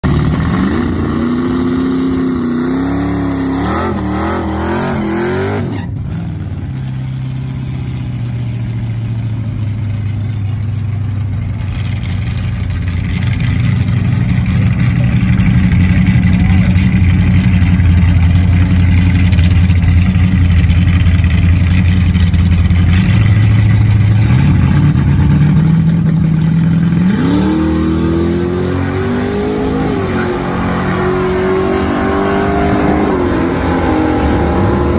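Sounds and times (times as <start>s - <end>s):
drag racing engine revving: 0.0s - 34.9s
engine idling: 6.5s - 27.1s.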